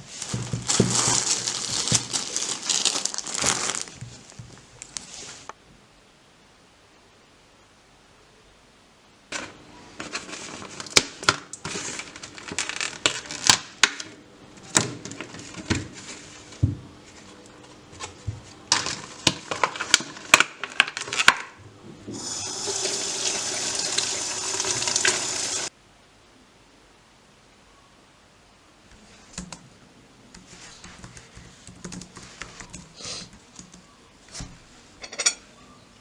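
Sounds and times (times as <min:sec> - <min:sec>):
water tap running: 0:21.7 - 0:25.7.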